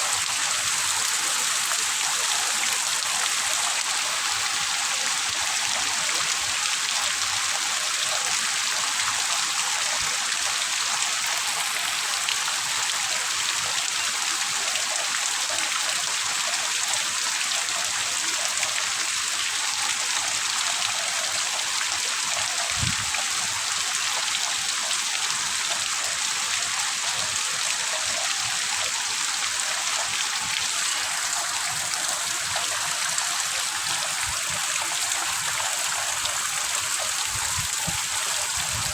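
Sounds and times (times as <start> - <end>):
heavy rain: 0.0 - 5.6, 29.3 - 38.9.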